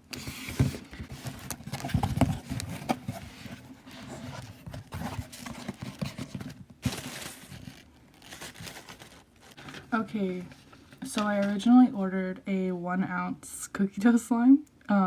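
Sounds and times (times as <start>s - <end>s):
rustling: 0.1s - 11.5s.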